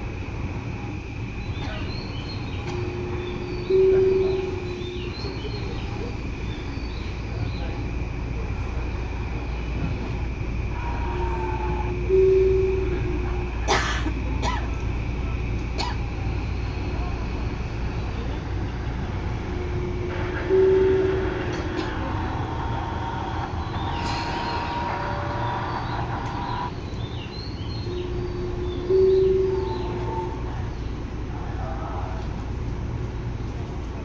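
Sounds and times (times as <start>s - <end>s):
train humming at platform: 0.0s - 34.0s
short tone: 2.7s - 5.1s, 12.0s - 13.2s, 19.6s - 21.5s, 27.8s - 30.5s.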